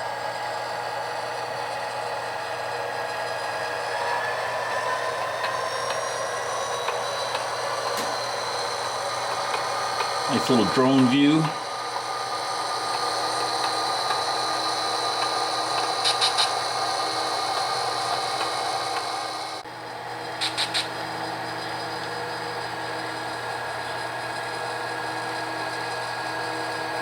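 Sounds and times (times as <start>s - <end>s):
drone propellers whirring: 2.2s - 19.6s.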